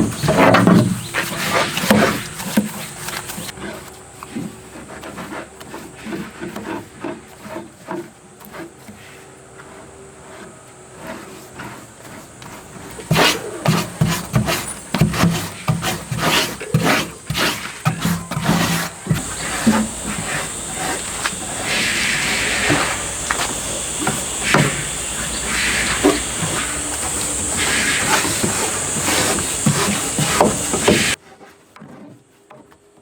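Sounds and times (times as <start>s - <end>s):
rustling: 7.0s - 32.1s
loud animal calls: 19.2s - 31.2s.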